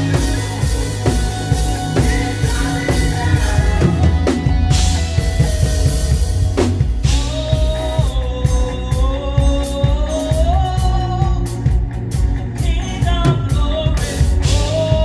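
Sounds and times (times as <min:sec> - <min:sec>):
bass drum and snare hits: 0:00.0 - 0:08.2
person singing melody: 0:00.0 - 0:11.8
live band playing: 0:00.0 - 0:15.0.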